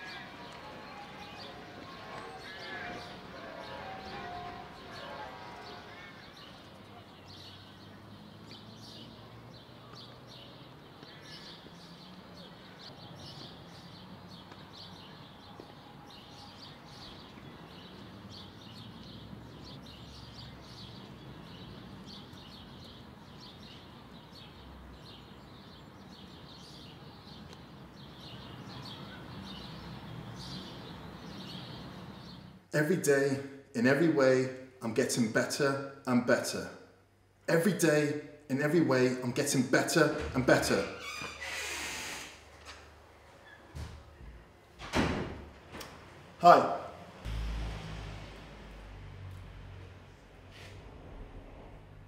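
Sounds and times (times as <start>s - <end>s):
small birds chirping: 0.0s - 32.7s.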